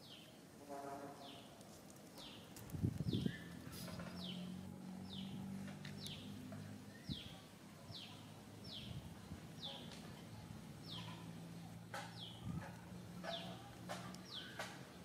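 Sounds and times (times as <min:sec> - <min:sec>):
bird chirping: 0:02.2 - 0:09.0, 0:14.2 - 0:15.0.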